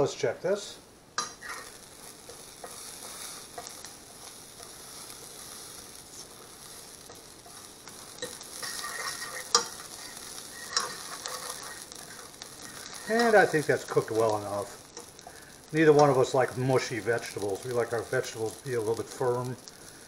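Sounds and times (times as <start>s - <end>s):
vegetables sizzling in a frying pan: 0.0s - 20.0s
fork clicking and scraping a pan: 1.2s - 3.8s, 8.2s - 12.1s.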